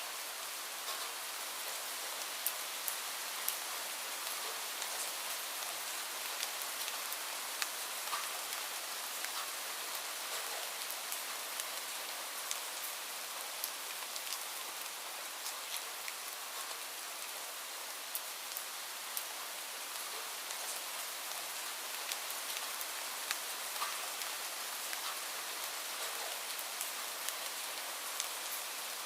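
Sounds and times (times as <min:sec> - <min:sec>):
steady rain hiss: 0:00.0 - 0:29.0
raindrops ticking on a surface: 0:00.1 - 0:29.0.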